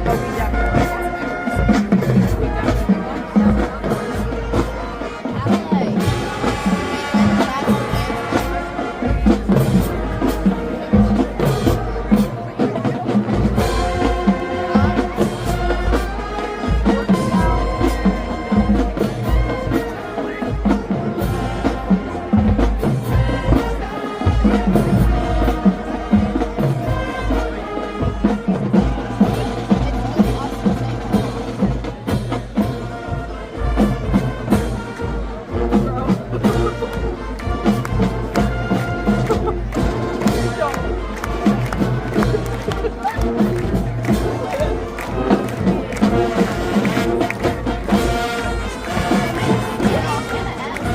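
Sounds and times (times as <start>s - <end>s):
marching band playing: 0.0s - 50.9s.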